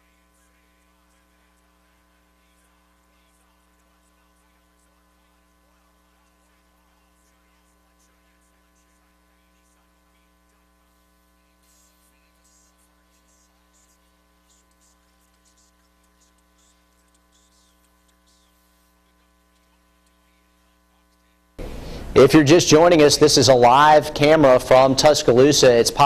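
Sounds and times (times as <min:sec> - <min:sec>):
electrical mains hum: 0:00.0 - 0:26.0
faint crackling static: 0:00.0 - 0:26.0.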